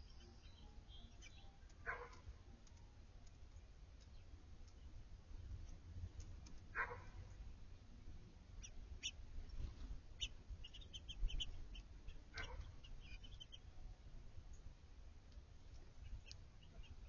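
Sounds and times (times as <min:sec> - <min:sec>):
songbirds chip calls: 0:00.0 - 0:07.2, 0:08.5 - 0:13.8, 0:15.6 - 0:17.0.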